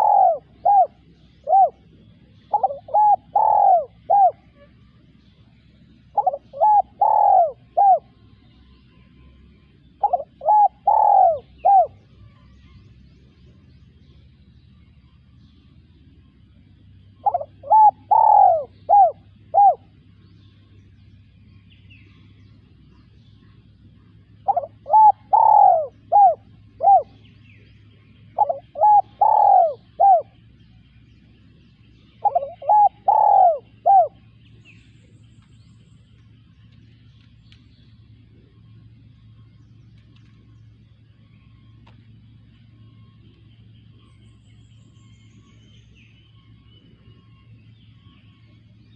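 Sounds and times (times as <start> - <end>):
dove cooing: 0.0 - 8.4, 9.6 - 12.0, 17.1 - 20.2, 23.6 - 34.6.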